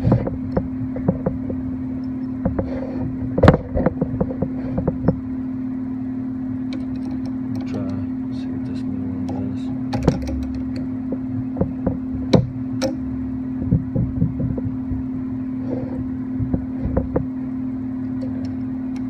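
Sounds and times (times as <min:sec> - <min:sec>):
steady low hum: 0:00.0 - 0:19.0
metal clicks and knocks: 0:06.7 - 0:08.0, 0:09.2 - 0:13.0.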